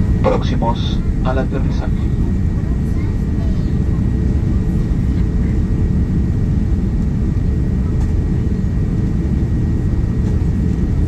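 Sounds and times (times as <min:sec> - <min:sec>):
airliner cabin engine roar: 0:00.0 - 0:11.0.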